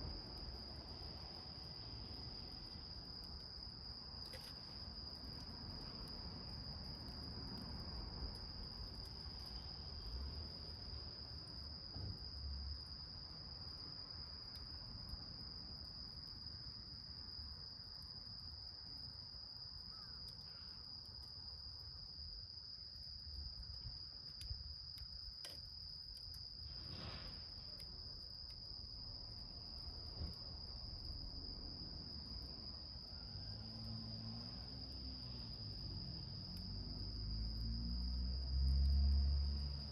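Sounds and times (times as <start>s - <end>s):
cricket trilling: 18.4s - 22.2s, 22.8s - 39.9s.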